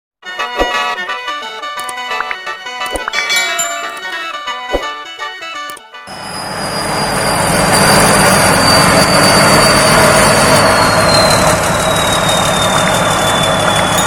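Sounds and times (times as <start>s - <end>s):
combine harvester engine running: 6.1s - 14.0s.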